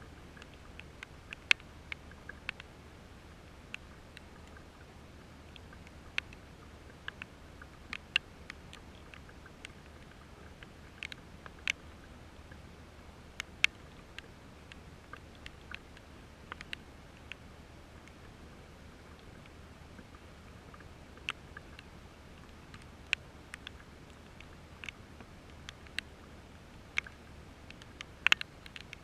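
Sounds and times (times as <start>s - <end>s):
low steady hum: 0.0s - 29.0s
raindrops ticking on microphone: 0.0s - 29.0s.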